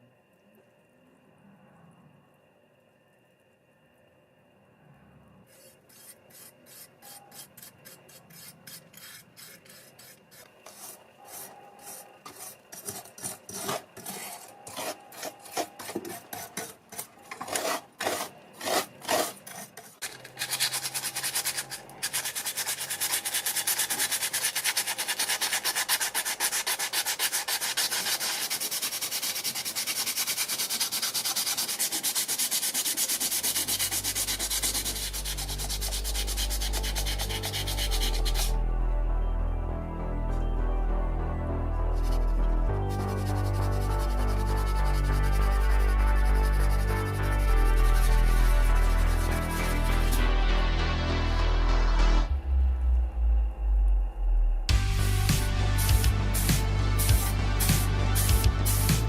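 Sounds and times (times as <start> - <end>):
sandpaper rubbing: 5.5 - 38.6, 41.9 - 50.3, 55.1 - 59.0
low hum: 33.7 - 59.0.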